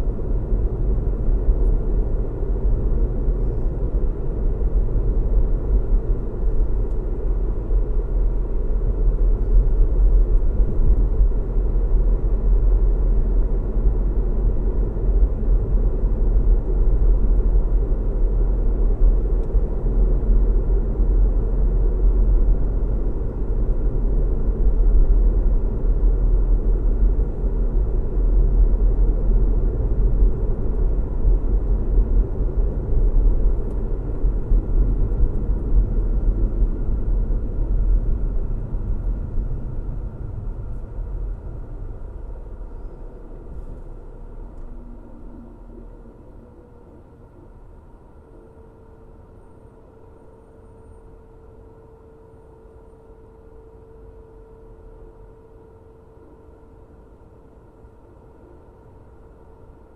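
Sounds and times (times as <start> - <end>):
car engine hum and road noise: 0.0 - 47.9.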